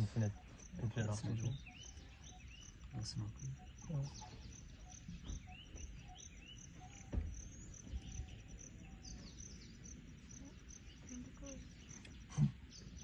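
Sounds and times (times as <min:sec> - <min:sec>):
birds chirping: 0:00.0 - 0:13.0
thump: 0:07.0 - 0:07.5.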